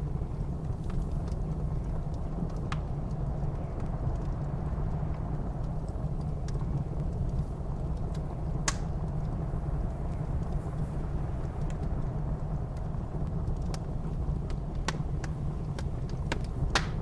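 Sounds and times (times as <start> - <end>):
low rumble of blizzard wind: 0.0 - 17.0
wood fire crackling: 0.0 - 17.0
sharp pop of fire: 16.7 - 17.0.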